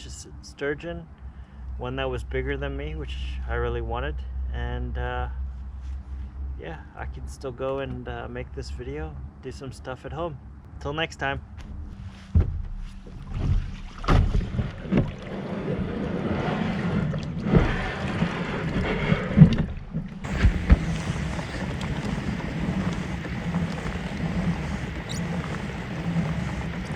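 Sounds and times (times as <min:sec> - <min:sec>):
knocks and thumps on kayak: 0:11.6 - 0:26.9
wind on microphone: 0:11.6 - 0:26.9
water rushing: 0:13.1 - 0:26.9.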